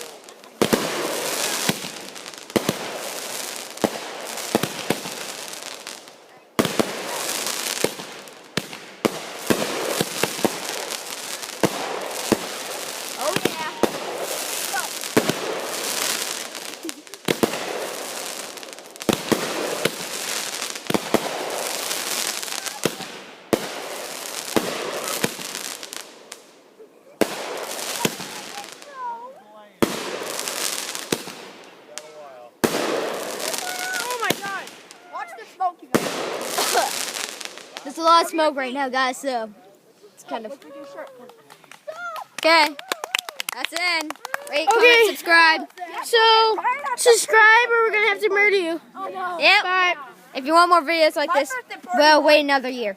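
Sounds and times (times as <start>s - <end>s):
firework bangs: 0.0s - 39.4s
firework crackling hiss: 0.0s - 49.7s.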